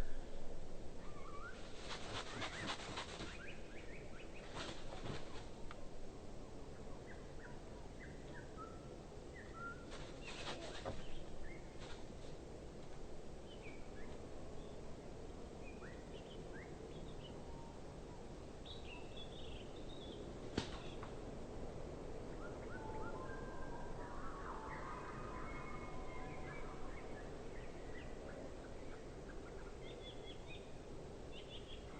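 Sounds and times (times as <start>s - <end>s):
outdoor background hiss: 0.0s - 31.9s
birds whistling calls: 1.0s - 4.4s, 22.4s - 30.6s.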